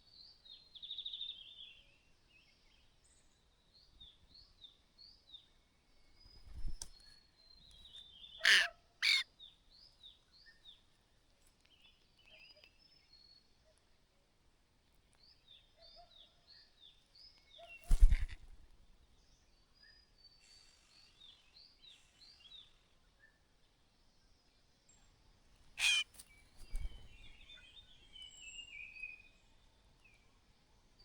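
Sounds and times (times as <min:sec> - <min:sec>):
high bird chirps: 0:25.8 - 0:26.0.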